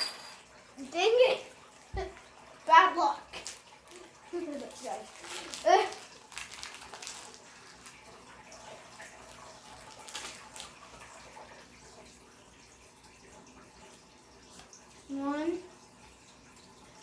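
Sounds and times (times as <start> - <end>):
trading cards rustling: 3.3 - 8.1, 9.2 - 10.8.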